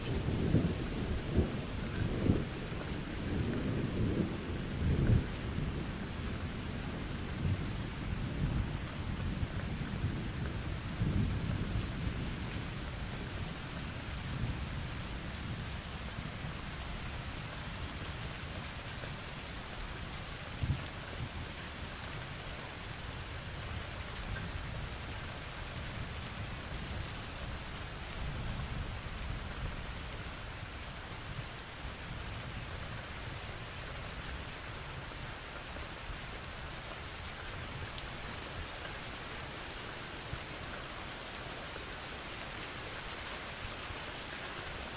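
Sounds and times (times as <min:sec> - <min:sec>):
thunder rumbling: 0:00.0 - 0:17.2
rain hissing: 0:00.0 - 0:44.9.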